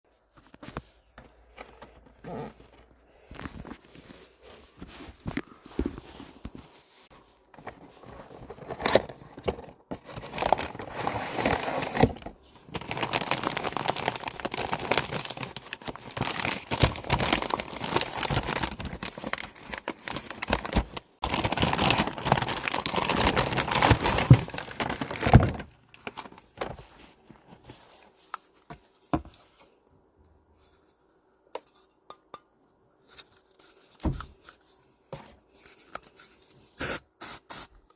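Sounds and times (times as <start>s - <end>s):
packaging tearing and crinkling: 10.0s - 26.4s.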